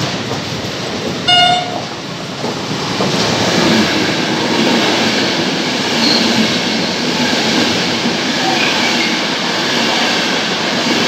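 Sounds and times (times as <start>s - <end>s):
trains rumbling and clattering: 0.0s - 11.0s
train horn blast: 1.3s - 1.9s.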